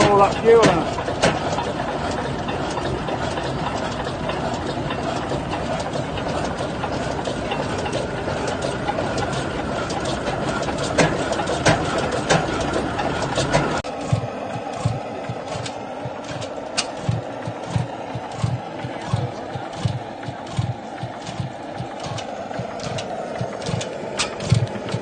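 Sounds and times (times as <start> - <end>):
heavy engine clattering: 0.0 - 25.0
sharp clicks: 14.6 - 25.0.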